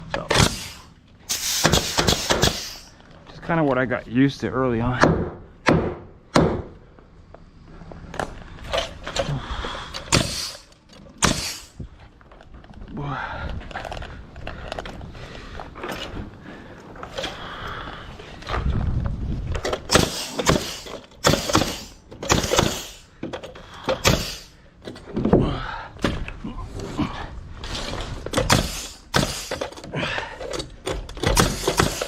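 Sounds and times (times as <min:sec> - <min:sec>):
nail gun firing: 0:00.3 - 0:02.8, 0:05.0 - 0:06.7, 0:10.0 - 0:11.8, 0:19.6 - 0:23.0, 0:23.9 - 0:24.5, 0:28.3 - 0:29.8, 0:30.8 - 0:32.0.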